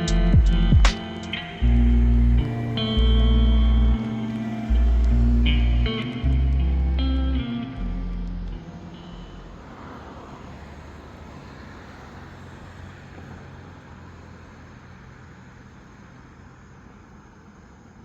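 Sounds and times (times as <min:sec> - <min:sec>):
lofi music: 0:00.0 - 0:09.1
road traffic noise: 0:00.0 - 0:18.0.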